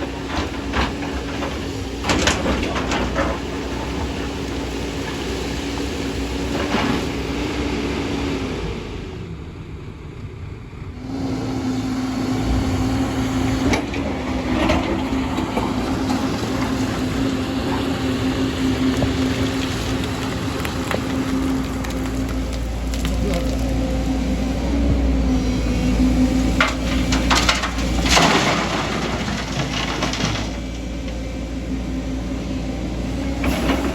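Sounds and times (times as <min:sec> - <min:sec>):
excavator engine running: 0:00.0 - 0:33.9.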